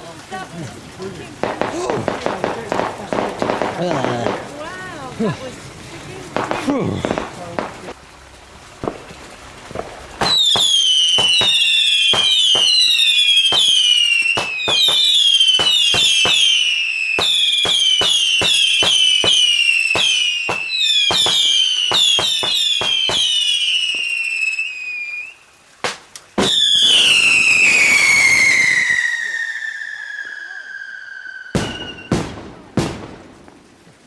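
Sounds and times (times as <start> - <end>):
firework bangs: 1.2 - 5.5, 6.1 - 8.0, 8.8 - 24.4, 25.8 - 33.8
firework whistles falling in pitch: 10.2 - 25.4, 26.4 - 32.4.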